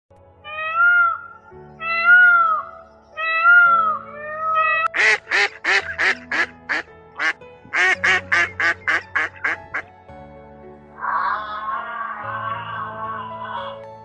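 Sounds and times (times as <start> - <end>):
soft background music: 0.1 - 14.0
peacock wailing calls: 0.5 - 4.9, 11.0 - 13.8
duck quacking: 4.5 - 9.8.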